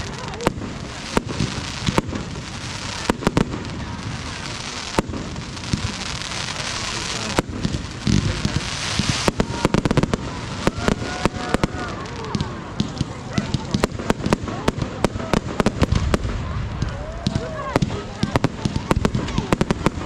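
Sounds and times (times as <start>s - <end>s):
steady hiss: 0.0s - 12.7s
fireworks bangs and crackling: 0.0s - 20.0s
fireworks whistling: 0.0s - 20.0s.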